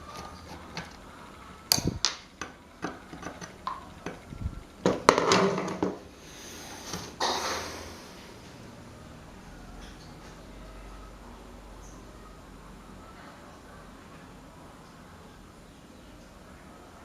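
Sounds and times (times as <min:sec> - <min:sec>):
tools and metal parts clattering: 0:04.9 - 0:06.0.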